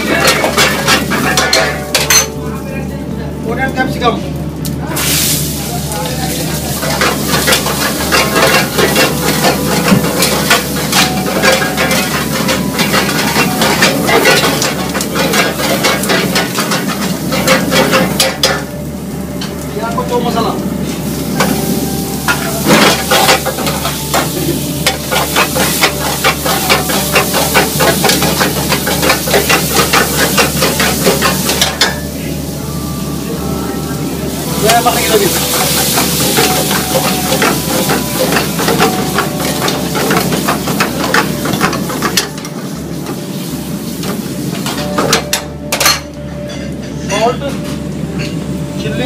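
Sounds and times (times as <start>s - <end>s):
vegetables sizzling in hot oil: 4.8s - 32.5s, 34.2s - 44.9s
spatula scraping a pan: 6.8s - 18.0s.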